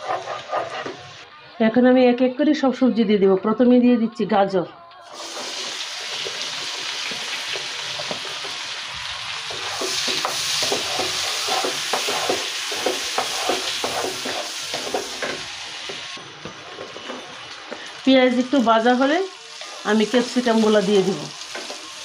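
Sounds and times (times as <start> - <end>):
wooden spatula scraping pan: 0.0 - 1.2, 9.5 - 17.9
carrots sizzling in butter: 5.0 - 22.0.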